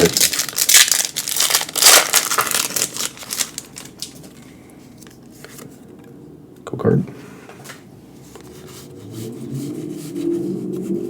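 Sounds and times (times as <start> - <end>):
foil wrapper tearing: 0.0 - 4.2
cards rustling: 0.0 - 5.7.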